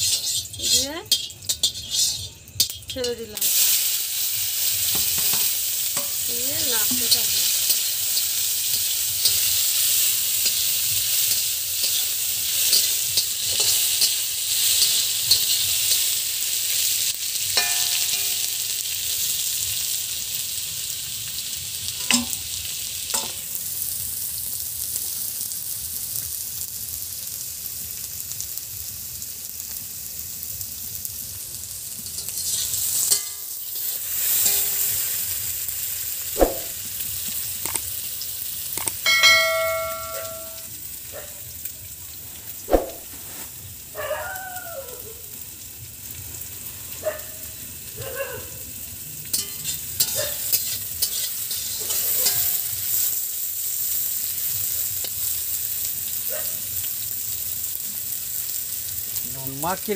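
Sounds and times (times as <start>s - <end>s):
spatula scraping and clinking on wok: 0.0s - 16.8s, 17.4s - 18.9s, 23.1s - 23.5s, 32.0s - 35.5s, 36.4s - 37.9s, 38.7s - 40.7s, 49.2s - 53.2s
vegetables sizzling in oil: 0.0s - 59.9s.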